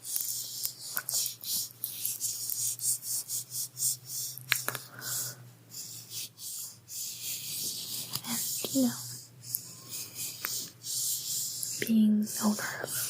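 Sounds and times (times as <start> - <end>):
steady low hum: 0.0 - 13.0
soft scratchy rubbing strokes: 5.1 - 13.0.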